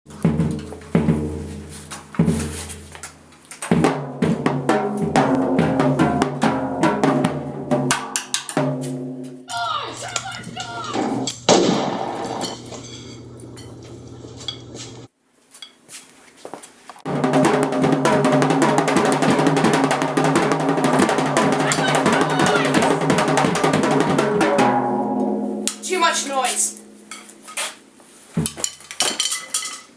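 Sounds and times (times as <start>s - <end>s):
music with drum kit: 0.1s - 12.1s, 17.1s - 25.8s.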